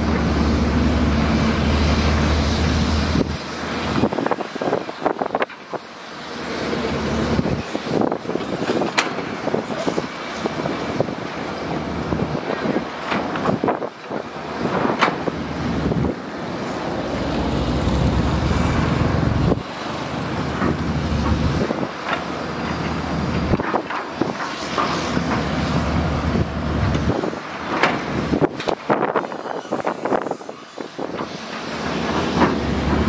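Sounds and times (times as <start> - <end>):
heavy machine diesel engine: 0.0 - 33.0
wind buffeting microphone: 7.1 - 22.0.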